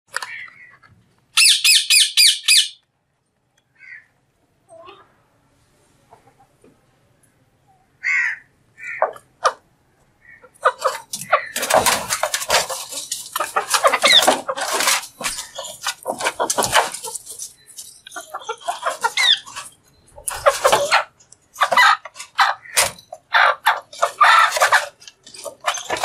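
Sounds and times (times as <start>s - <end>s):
parrot squawking: 1.4s - 2.8s, 18.1s - 19.6s.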